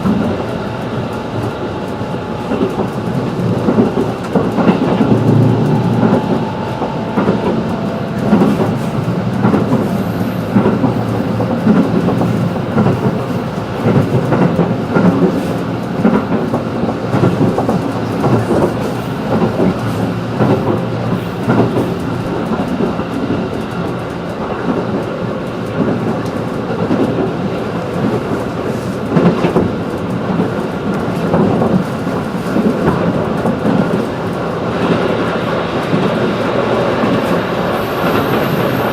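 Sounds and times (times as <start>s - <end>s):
track clicks and knocks: 0.0s - 27.3s
train wheels rumbling on rail: 0.0s - 38.9s.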